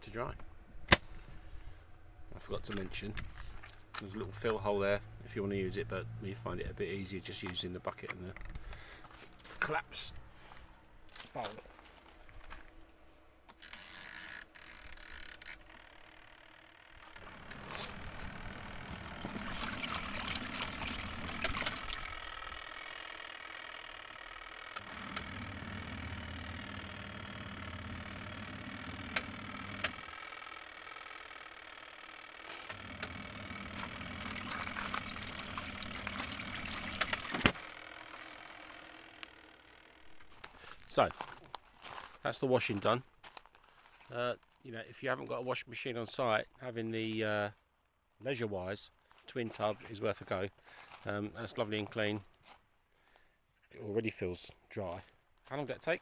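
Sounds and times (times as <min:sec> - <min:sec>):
washing machine motor hum: 0:16.7 - 0:30.5, 0:32.3 - 0:40.4
water swishing: 0:34.0 - 0:37.4.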